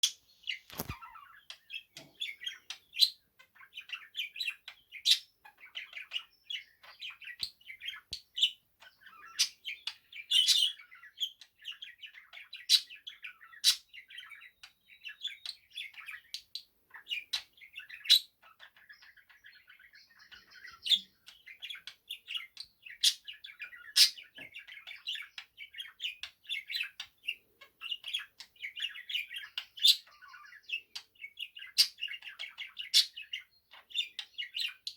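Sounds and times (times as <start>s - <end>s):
budgerigar warbling chirps: 2.2s - 11.4s, 20.2s - 27.0s.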